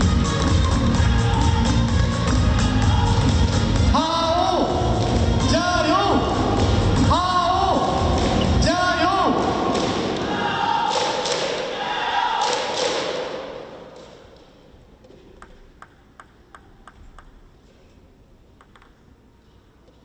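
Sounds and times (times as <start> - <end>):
arena crowd noise: 0.0 - 15.4
table tennis ball clicking: 15.3 - 17.5, 18.6 - 19.0.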